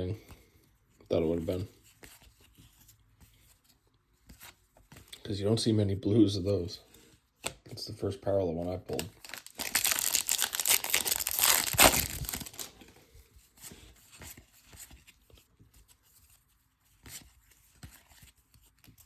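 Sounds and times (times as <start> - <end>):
cards rustling and ticking: 0.1 - 5.2, 8.9 - 19.0
foil wrapper tearing and crinkling: 8.9 - 12.8.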